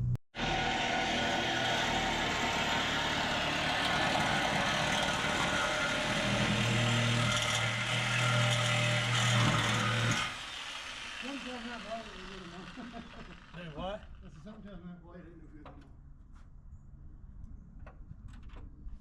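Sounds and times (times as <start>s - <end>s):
vehicle engine running: 10.3s - 14.0s.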